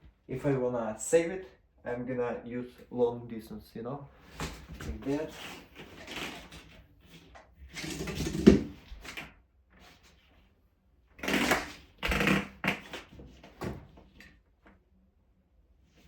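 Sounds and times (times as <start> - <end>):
plastic rustling and scraping: 4.2 - 10.5.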